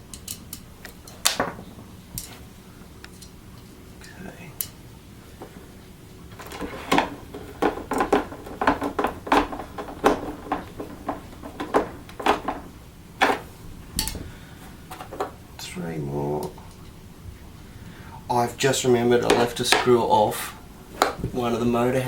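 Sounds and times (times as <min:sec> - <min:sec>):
plastic parts clicking and knocking: 0:06.3 - 0:14.3, 0:14.9 - 0:15.4.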